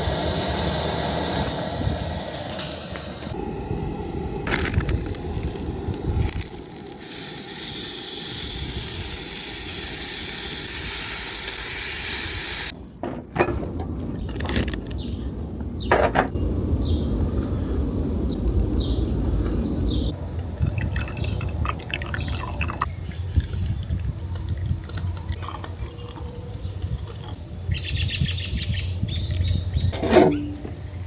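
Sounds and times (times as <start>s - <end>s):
low rumble: 0.0s - 7.0s, 13.8s - 26.9s.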